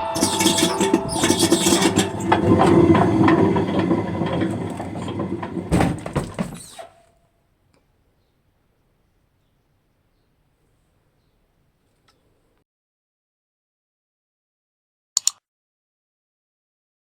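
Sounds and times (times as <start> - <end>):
washing machine spinning with knocks: 0.0 - 6.7.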